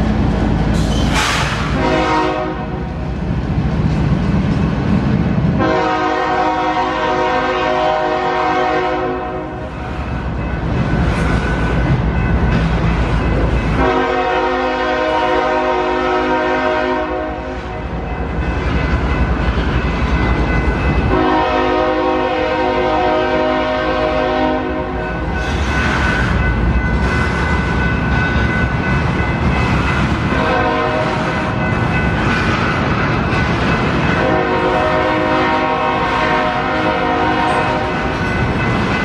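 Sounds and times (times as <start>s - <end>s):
train rumbling past: 0.0s - 39.0s
locomotive air horn blasts: 1.2s - 2.8s, 5.6s - 9.5s, 13.8s - 17.6s, 21.1s - 25.0s, 30.3s - 31.2s, 34.2s - 38.0s.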